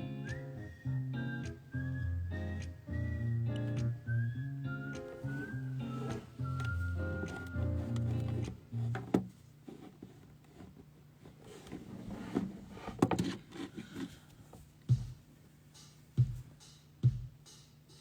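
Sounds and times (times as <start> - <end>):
handling clicks and knocks: 6.0 - 9.3.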